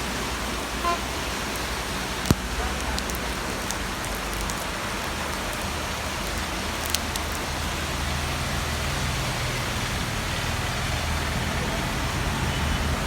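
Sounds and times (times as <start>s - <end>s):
steady rain falling: 0.0s - 13.0s
raindrop ticks: 0.8s - 9.0s.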